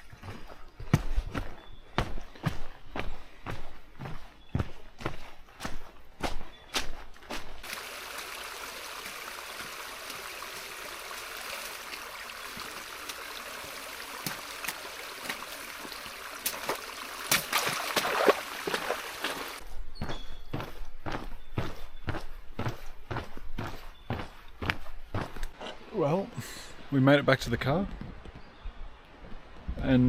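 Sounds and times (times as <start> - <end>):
footsteps: 0.0 - 7.8, 14.2 - 25.6
water splashes: 7.4 - 19.6
creek rushing: 7.6 - 19.6.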